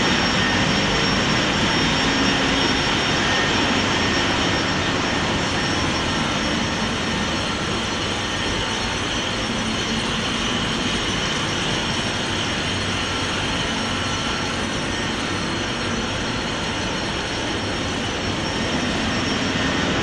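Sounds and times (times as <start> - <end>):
engine room machinery running: 0.0 - 20.0
faint constant tones: 0.0 - 20.0.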